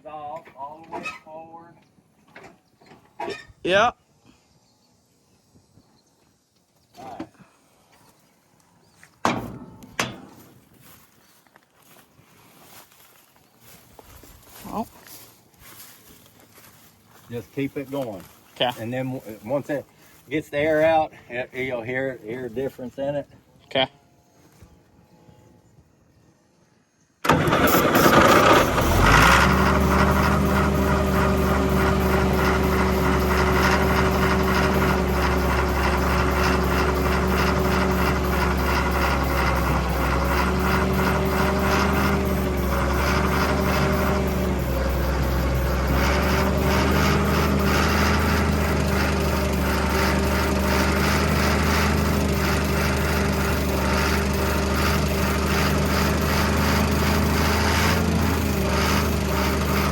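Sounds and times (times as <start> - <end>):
diesel engine running: 27.2 - 59.9.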